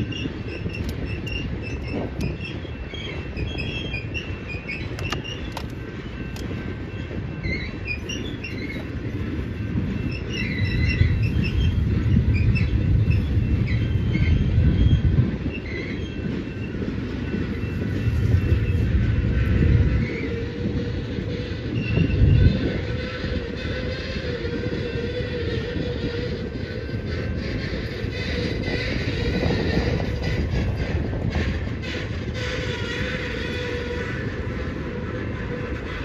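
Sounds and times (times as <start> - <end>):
freight train rumbling: 0.0 - 36.0
wheels squealing on rails: 0.0 - 36.0.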